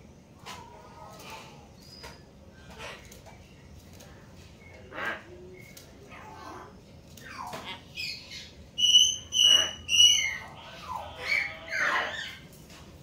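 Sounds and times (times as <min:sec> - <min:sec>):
bird chattering and squawking: 0:06.1 - 0:12.5.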